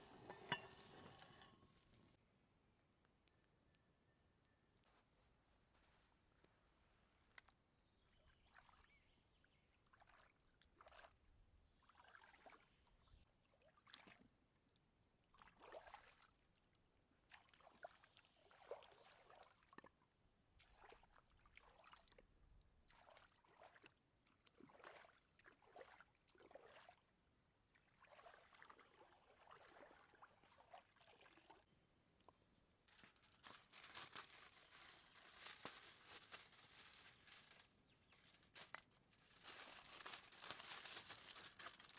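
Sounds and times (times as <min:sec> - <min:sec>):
food preparation scrapes and rustles: 0:00.0 - 0:02.1, 0:32.9 - 0:41.9.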